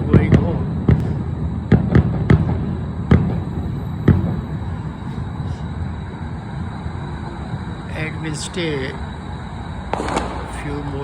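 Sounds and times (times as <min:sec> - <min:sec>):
distant fireworks bangs: 0:00.0 - 0:11.0
low rumble of city traffic: 0:00.0 - 0:11.0.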